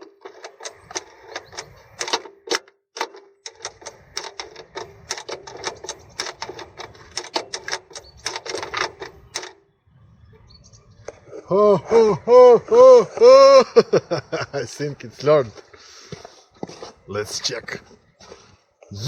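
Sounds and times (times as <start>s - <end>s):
rapid irregular actuator clicking: 0.0s - 9.6s.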